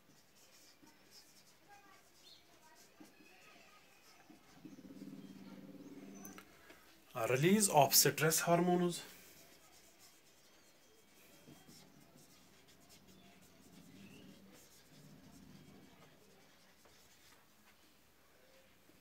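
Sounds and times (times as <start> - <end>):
pen scratching on paper: 0.1 - 6.3, 9.2 - 17.5.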